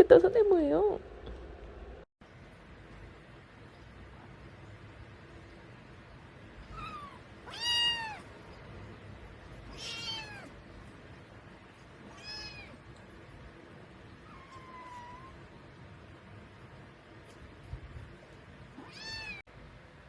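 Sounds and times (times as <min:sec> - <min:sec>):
kitten meowing: 0:06.7 - 0:08.2, 0:09.7 - 0:10.5, 0:12.1 - 0:12.8, 0:14.3 - 0:15.4, 0:18.8 - 0:19.4.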